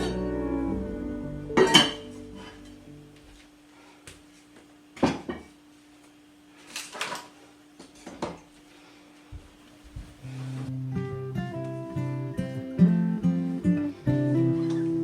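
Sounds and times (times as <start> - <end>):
acoustic guitar music: 0.0 - 3.2, 10.3 - 15.0
faint steady hum: 0.0 - 15.0.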